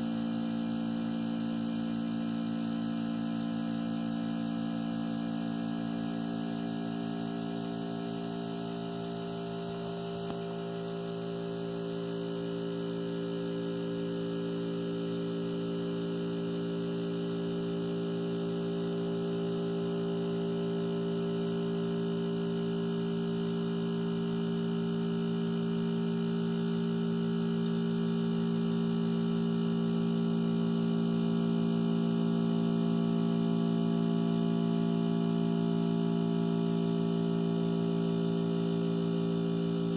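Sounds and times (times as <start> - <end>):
compressor humming: 0.0 - 39.9.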